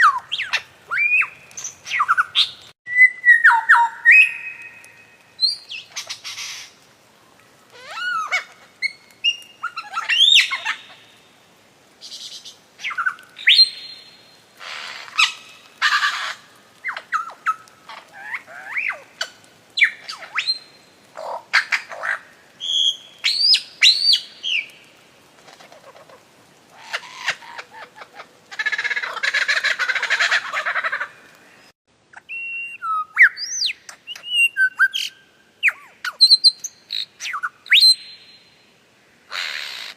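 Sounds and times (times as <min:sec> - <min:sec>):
birds whistling and chirping: 0:00.0 - 0:06.6, 0:07.8 - 0:11.0, 0:12.8 - 0:14.3, 0:22.6 - 0:24.8, 0:32.2 - 0:38.6.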